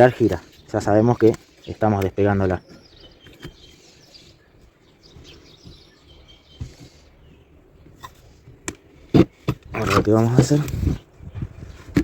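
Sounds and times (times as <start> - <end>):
faint bird chirps: 0.2 - 8.3.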